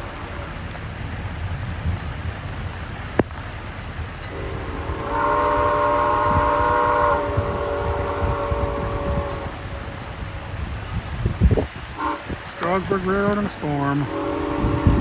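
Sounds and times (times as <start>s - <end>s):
steady rain falling: 0.0s - 15.0s
steam locomotive whistle chord: 4.2s - 10.0s, 14.0s - 15.0s.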